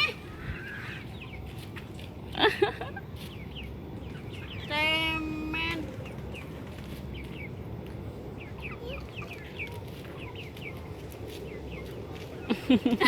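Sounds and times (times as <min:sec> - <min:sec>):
chicken clucking: 0:08.4 - 0:12.9.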